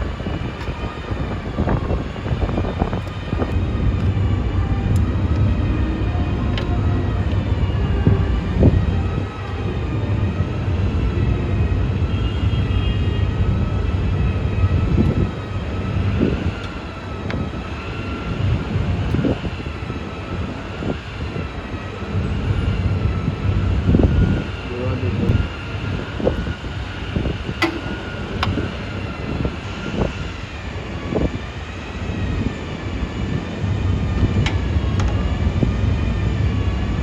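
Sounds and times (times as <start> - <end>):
vehicle low rumble: 0.0 - 37.0.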